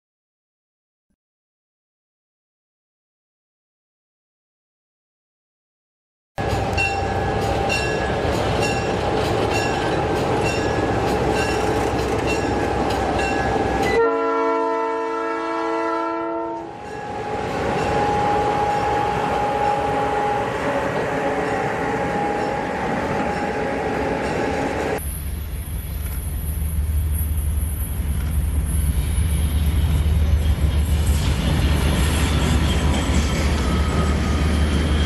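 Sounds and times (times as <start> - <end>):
train wheels clacking: 6.4 - 14.0
train horn chord: 13.5 - 24.3.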